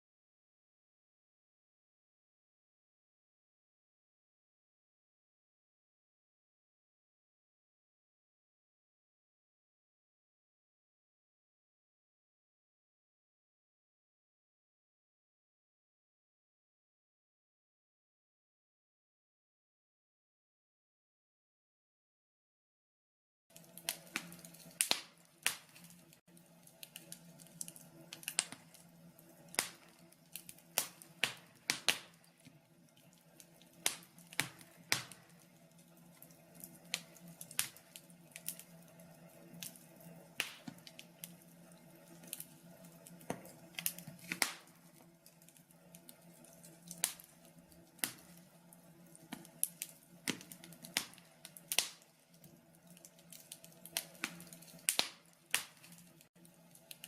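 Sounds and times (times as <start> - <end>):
wood fire crackling: 23.5 - 57.0.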